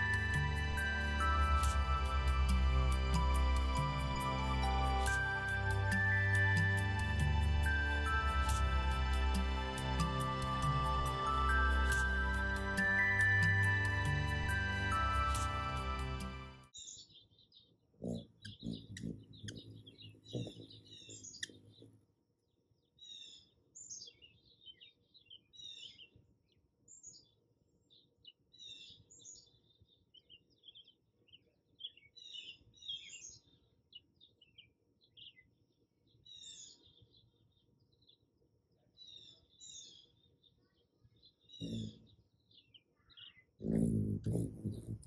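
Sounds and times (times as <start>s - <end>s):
faint high bird chirps: 16.8s - 22.0s, 39.0s - 45.0s.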